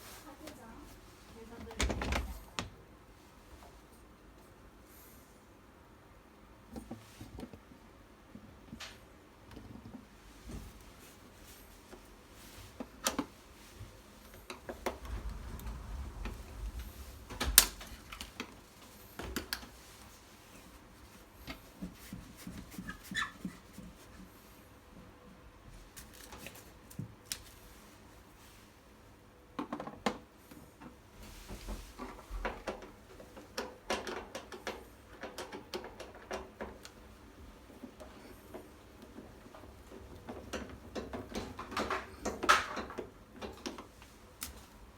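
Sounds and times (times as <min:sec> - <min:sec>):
low rumble: 0:14.6 - 0:18.5.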